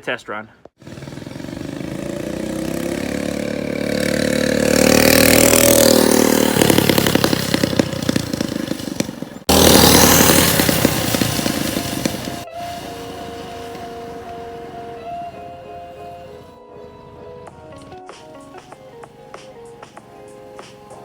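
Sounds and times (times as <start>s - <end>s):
mini bike engine running: 0.8s - 16.6s.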